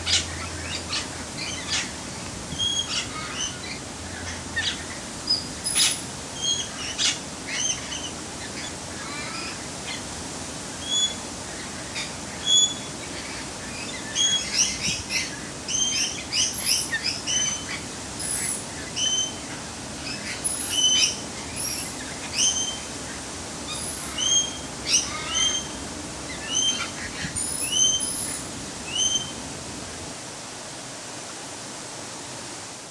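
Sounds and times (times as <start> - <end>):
steady background hiss: 0.0 - 32.9
rising whistled bird calls: 10.8 - 11.2, 12.0 - 12.9, 23.7 - 29.4.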